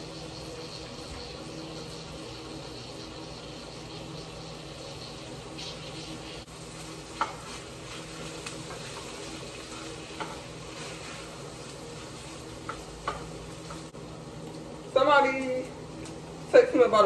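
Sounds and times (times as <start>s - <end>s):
food sizzling in a pan: 0.0s - 17.0s
utensil clicking against pan: 12.6s - 14.6s.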